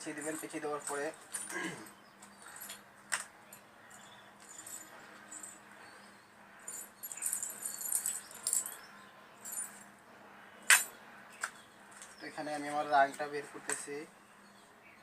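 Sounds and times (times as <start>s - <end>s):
wire twisting rustle and clicks: 0.2s - 1.6s.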